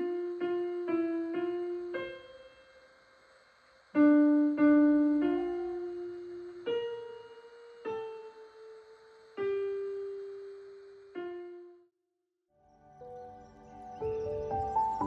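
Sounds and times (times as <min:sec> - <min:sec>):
slow piano melody: 0:00.0 - 0:02.8, 0:04.0 - 0:08.7, 0:12.6 - 0:15.0.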